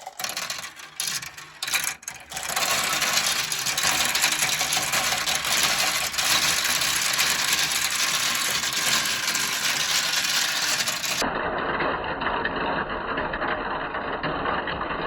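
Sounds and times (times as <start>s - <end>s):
marbles clattering down plastic track: 0.0s - 11.2s.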